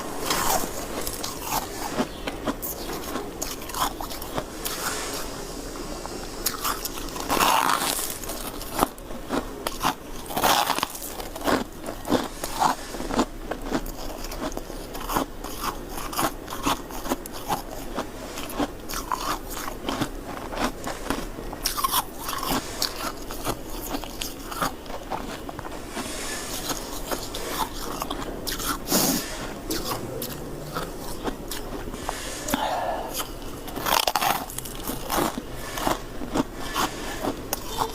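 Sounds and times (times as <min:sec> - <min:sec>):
ice crunching being chewed: 0:00.0 - 0:05.0, 0:06.4 - 0:37.9.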